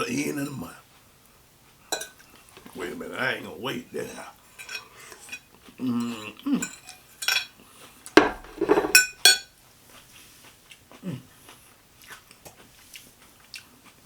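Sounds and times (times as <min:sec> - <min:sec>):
cutlery clinking against dishes: 0:01.9 - 0:02.7, 0:04.0 - 0:07.6, 0:08.2 - 0:09.5.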